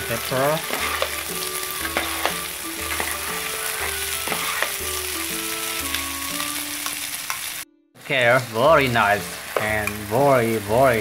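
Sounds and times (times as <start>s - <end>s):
food sizzling in hot oil: 0.0s - 11.0s
metal spatula scraping pan: 0.4s - 4.9s.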